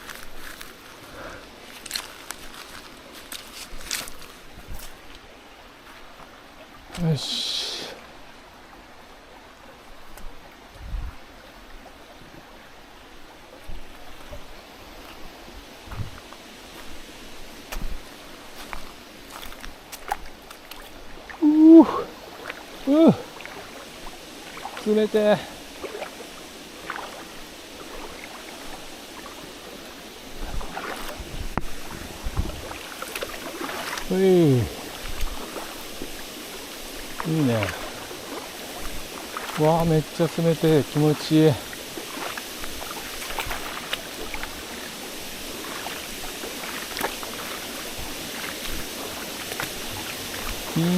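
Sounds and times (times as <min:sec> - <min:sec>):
stream water rushing: 0:00.0 - 0:50.9
wading thumps and splashes: 0:13.6 - 0:17.0, 0:17.7 - 0:24.9, 0:25.8 - 0:26.2, 0:26.8 - 0:29.4, 0:30.3 - 0:34.2, 0:41.7 - 0:50.8
dull low thumps: 0:15.9 - 0:16.2, 0:31.3 - 0:32.7.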